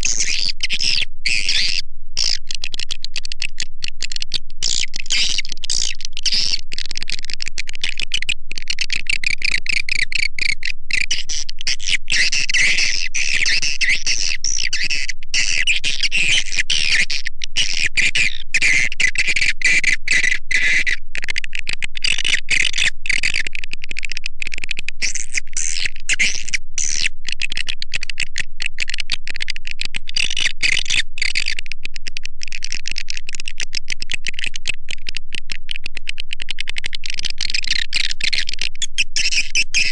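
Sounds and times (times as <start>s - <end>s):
swiftlets twittering and chirping: 37.6s - 39.9s.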